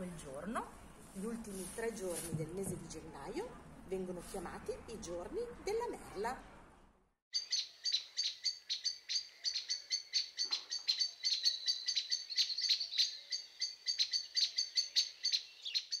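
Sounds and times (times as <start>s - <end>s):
birds chirping: 7.3s - 16.0s.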